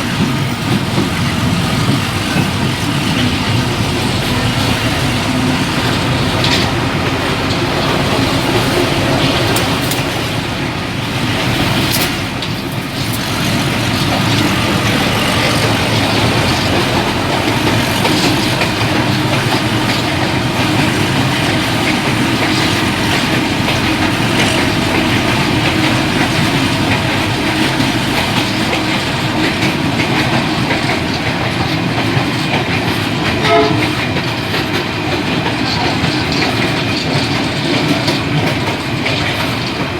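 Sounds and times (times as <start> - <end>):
train rumbling and rattling: 0.0 - 39.9
train wheel clicks: 0.0 - 39.9.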